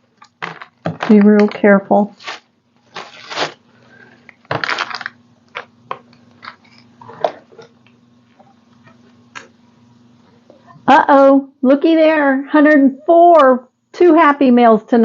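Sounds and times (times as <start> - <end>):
paper crinkling and rustling: 0.2 - 3.6, 4.5 - 5.7.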